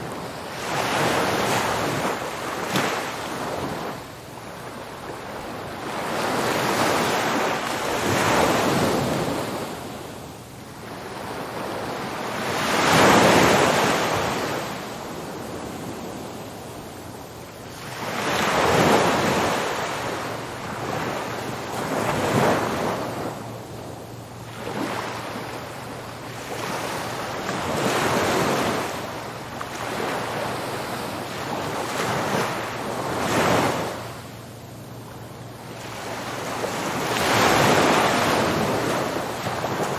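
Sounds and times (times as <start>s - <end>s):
ocean waves breaking: 17.7s - 39.9s.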